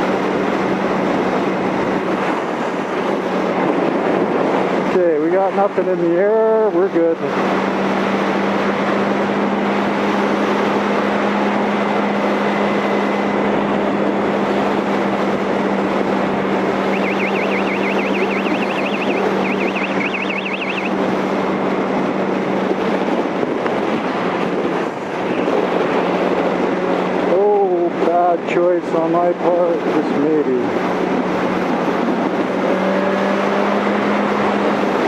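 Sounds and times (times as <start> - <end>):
wind rush on microphone: 0.0 - 35.0
high warbling sound: 16.8 - 21.0.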